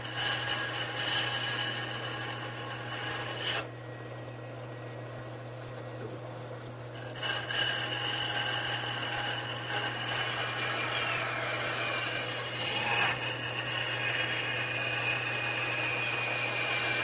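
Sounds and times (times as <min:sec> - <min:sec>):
power tool whine: 0:00.0 - 0:04.3, 0:06.9 - 0:17.0
low hum: 0:00.0 - 0:10.9.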